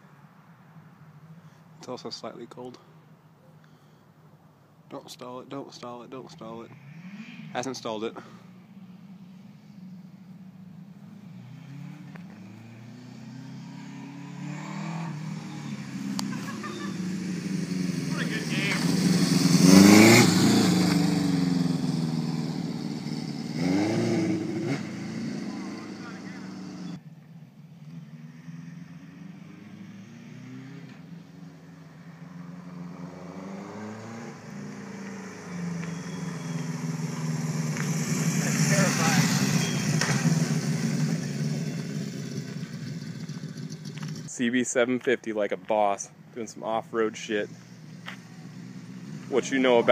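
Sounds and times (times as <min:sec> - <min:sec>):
motorcycle engine revving: 0:09.7 - 0:27.0, 0:27.8 - 0:44.3, 0:47.0 - 0:49.9.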